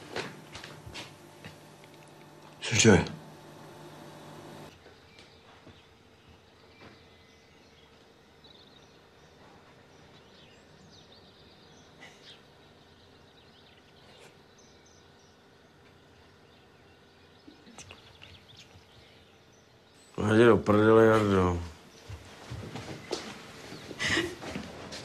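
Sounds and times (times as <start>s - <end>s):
low steady hum: 0.0s - 4.8s
soft bird chirps: 3.4s - 20.2s.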